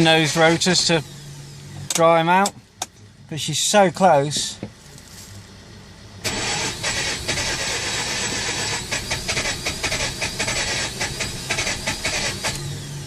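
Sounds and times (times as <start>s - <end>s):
car engine cranking on starter: 0.0s - 2.1s, 6.2s - 13.0s.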